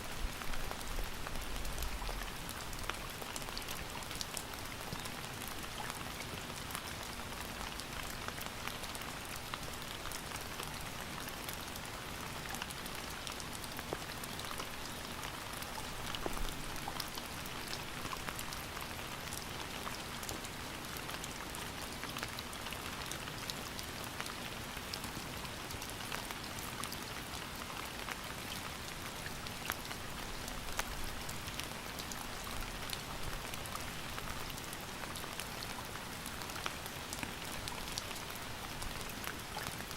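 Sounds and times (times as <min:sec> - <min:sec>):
rain falling on a surface: 0:00.0 - 0:39.9
raindrop ticks: 0:12.5 - 0:15.0.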